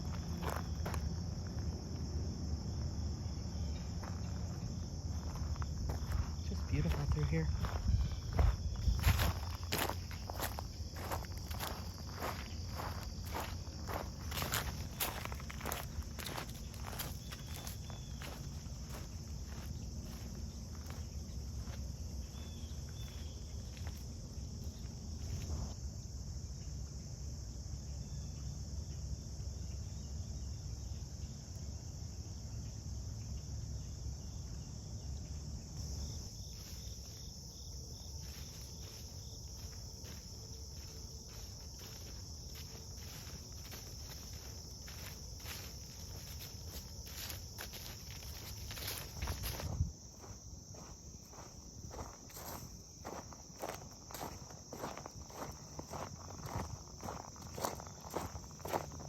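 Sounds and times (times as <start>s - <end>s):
footsteps walking: 0.0s - 2.1s, 3.9s - 21.9s, 35.9s - 59.0s
insects chirping: 0.0s - 59.0s.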